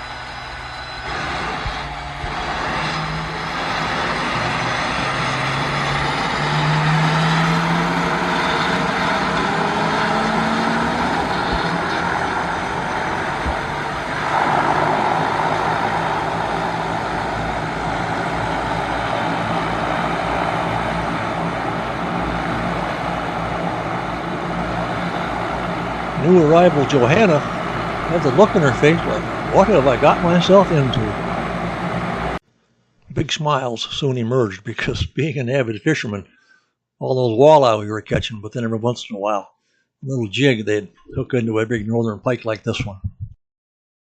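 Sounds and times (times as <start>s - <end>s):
floatplane engine and propeller: 0.0s - 32.4s.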